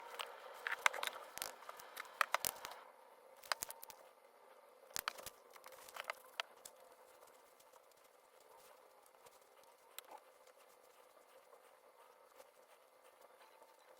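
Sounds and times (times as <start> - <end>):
faint steady hum: 0.0 - 13.9
small clicks and taps: 0.1 - 2.8, 3.4 - 4.0, 5.0 - 6.8.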